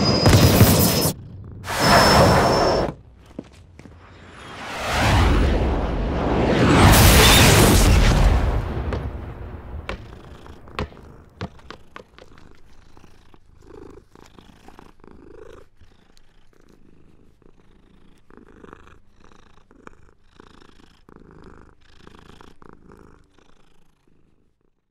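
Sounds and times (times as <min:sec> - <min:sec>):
cat purring: 0:01.0 - 0:01.7, 0:09.8 - 0:24.9.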